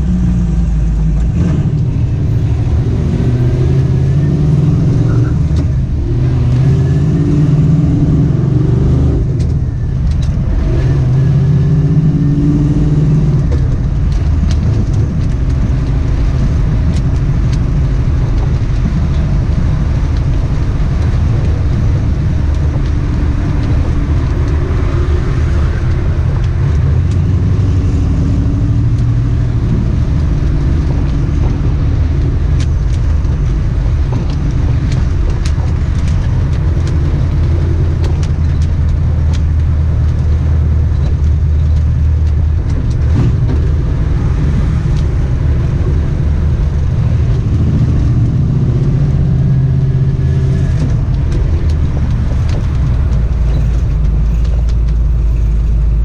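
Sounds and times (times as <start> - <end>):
engine running inside vehicle: 0.0 - 56.0
road and wind noise: 0.0 - 56.0.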